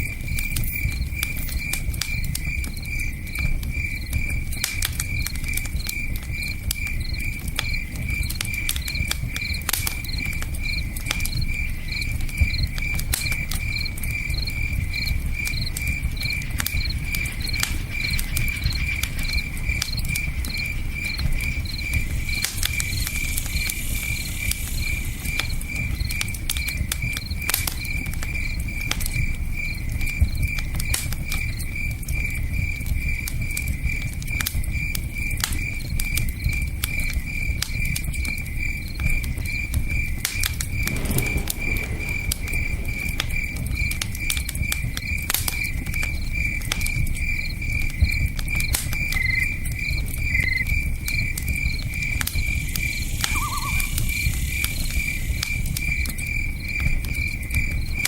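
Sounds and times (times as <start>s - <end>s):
campfire crackling: 0.0s - 58.0s
cricket chirping: 0.0s - 58.0s.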